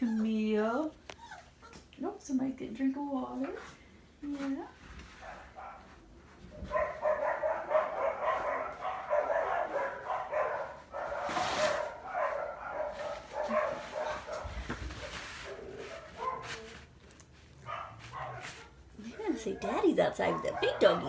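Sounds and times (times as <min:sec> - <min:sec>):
puppies barking and yipping: 0:06.7 - 0:16.6, 0:19.6 - 0:21.0.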